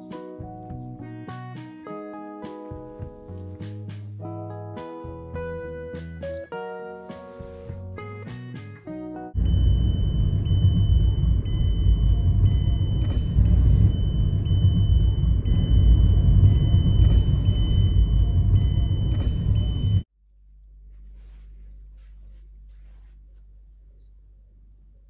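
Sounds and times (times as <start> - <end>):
road and wind noise: 9.4 - 20.0
car rumbling on the move: 9.4 - 20.1.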